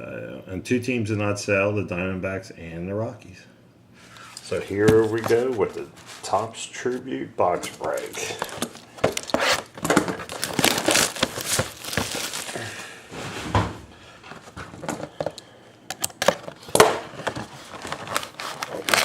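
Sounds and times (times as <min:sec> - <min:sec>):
shrink-wrap crinkling: 0:04.2 - 0:13.0, 0:16.3 - 0:19.0
cardboard box clicks and knocks: 0:08.5 - 0:12.4.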